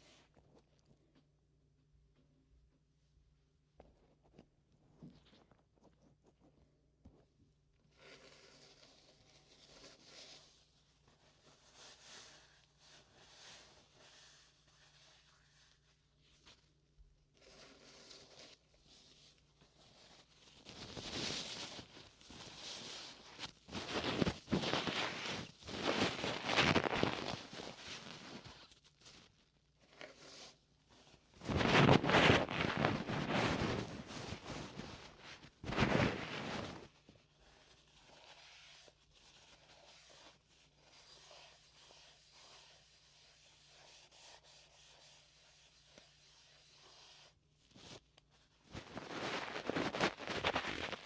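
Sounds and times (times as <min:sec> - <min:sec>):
oiled hands rubbing skin: 0:20.4 - 0:29.3, 0:30.0 - 0:51.0.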